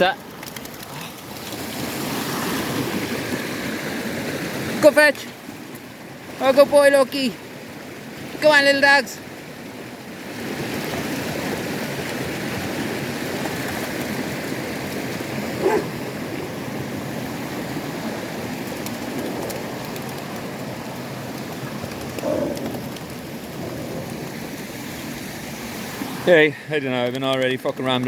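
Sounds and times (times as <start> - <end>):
water rushing and splashing: 0.0 - 28.0
dog barking: 15.6 - 16.0.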